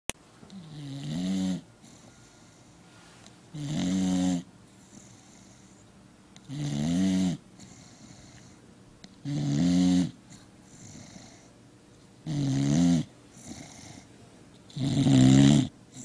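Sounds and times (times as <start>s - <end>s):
dog snoring: 0.5s - 2.8s, 3.5s - 5.8s, 6.4s - 8.6s, 9.2s - 11.5s, 12.2s - 14.1s, 14.7s - 16.0s.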